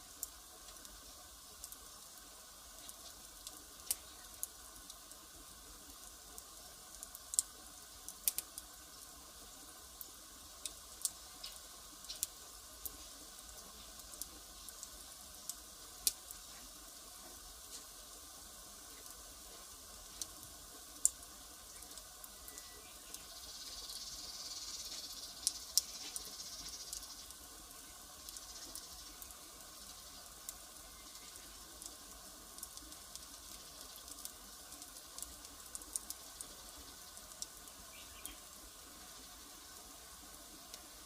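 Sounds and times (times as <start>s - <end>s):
fire hissing: 0.0s - 41.0s
wood fire crackling and popping: 0.0s - 41.0s.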